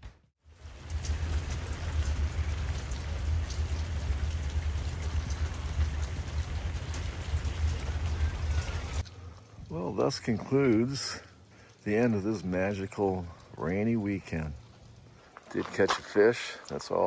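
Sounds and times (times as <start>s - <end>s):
steady rain hiss: 0.4s - 17.0s
low rumble: 0.6s - 9.9s.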